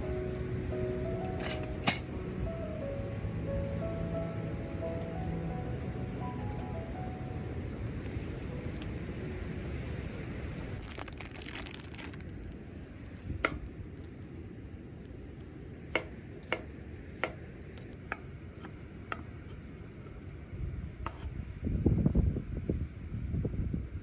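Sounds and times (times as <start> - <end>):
low outdoor background: 0.0 - 24.0
bumping and rustling handling: 1.2 - 2.1
camp gear clinking: 1.2 - 2.2, 4.5 - 5.4, 6.0 - 7.0, 10.8 - 16.6.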